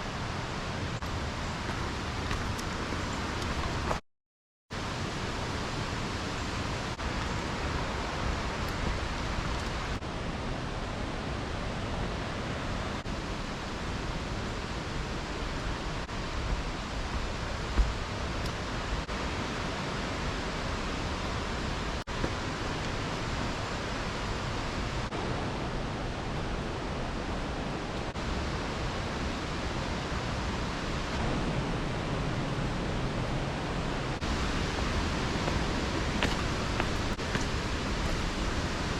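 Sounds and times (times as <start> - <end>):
waterfall roaring: 4.8 - 38.9.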